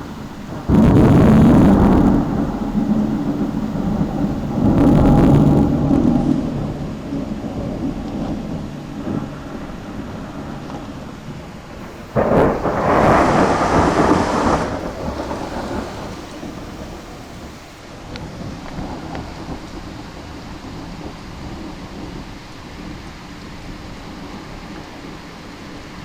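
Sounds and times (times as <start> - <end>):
thunderclap rumbling: 0.0 - 6.7, 11.8 - 17.8
falling rain: 0.0 - 11.0, 11.8 - 26.0.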